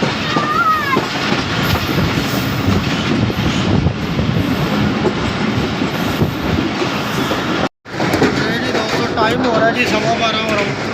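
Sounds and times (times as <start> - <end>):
train coaches rumbling and rattling: 0.0 - 10.9
wheels clattering over rail joints: 0.0 - 10.9.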